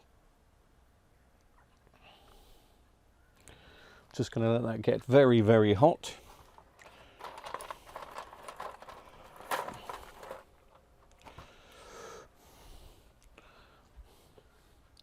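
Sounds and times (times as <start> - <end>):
handling noises on a workbench: 6.3 - 11.6.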